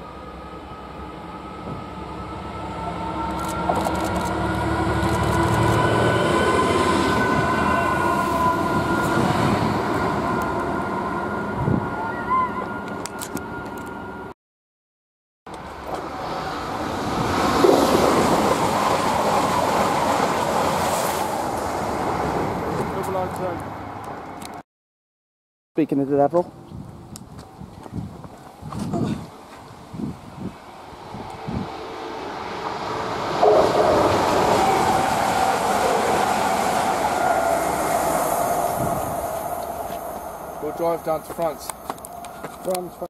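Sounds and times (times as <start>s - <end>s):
passenger train passing: 0.0s - 14.3s, 15.5s - 24.5s, 29.8s - 43.0s
train wheels rumbling: 30.8s - 43.0s.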